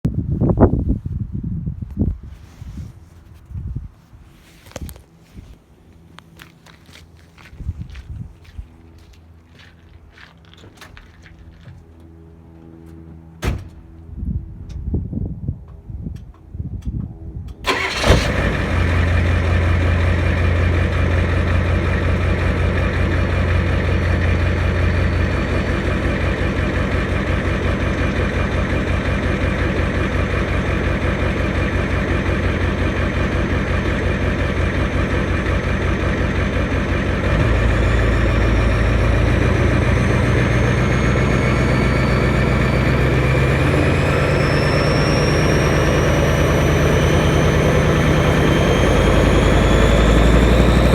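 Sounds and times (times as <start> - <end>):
faint high turbo whine: 0.2 - 50.9
diesel engine idling: 17.7 - 50.9.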